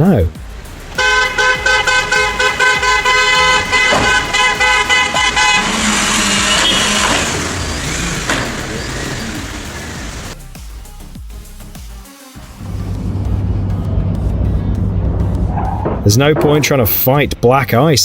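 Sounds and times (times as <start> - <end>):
car horn honking: 0.9 - 10.4.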